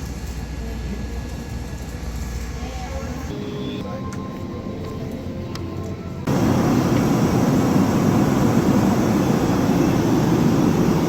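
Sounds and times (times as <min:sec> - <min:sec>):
airliner rumble: 0:06.2 - 0:11.0.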